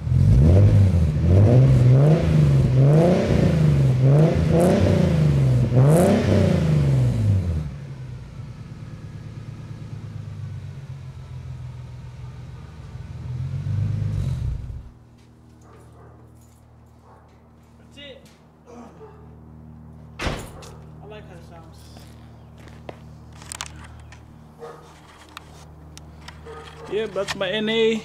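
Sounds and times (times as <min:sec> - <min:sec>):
car engine revving and idling: 0:00.0 - 0:15.1.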